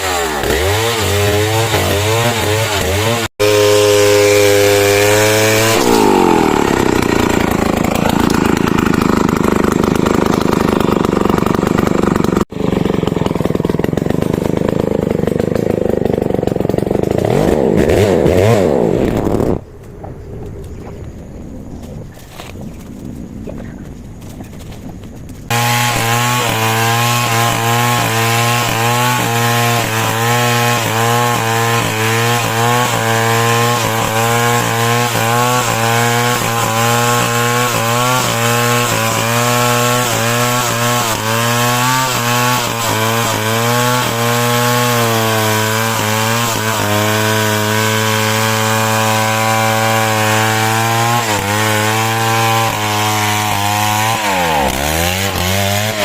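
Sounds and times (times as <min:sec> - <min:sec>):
chainsaw cutting lumber: 0:00.0 - 0:19.6, 0:25.5 - 0:56.0.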